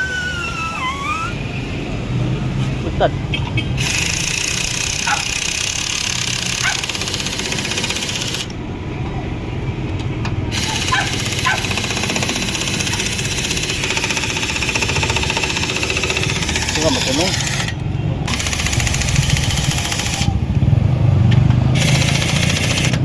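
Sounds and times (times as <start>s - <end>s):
engine running with fast pulse: 18.3s - 23.0s.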